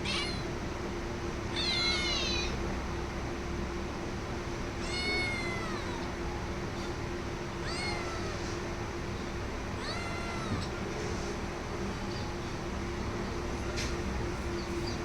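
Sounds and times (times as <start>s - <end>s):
cat meowing: 0.0s - 0.5s, 1.5s - 2.6s, 4.8s - 6.2s, 7.6s - 8.5s, 9.8s - 10.8s.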